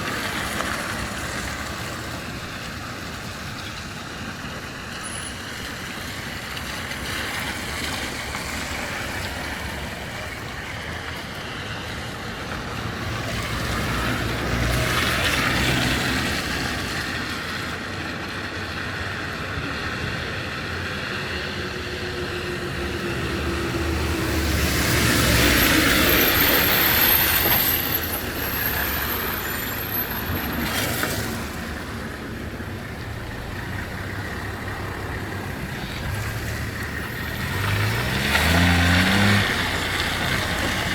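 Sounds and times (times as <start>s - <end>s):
hum of passing traffic: 0.0s - 40.9s
loud vehicle passing: 11.5s - 17.7s, 19.0s - 40.9s.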